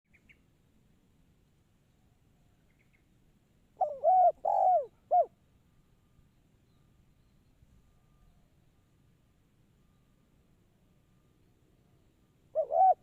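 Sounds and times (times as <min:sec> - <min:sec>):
dove cooing: 0:03.8 - 0:05.3, 0:12.5 - 0:13.0.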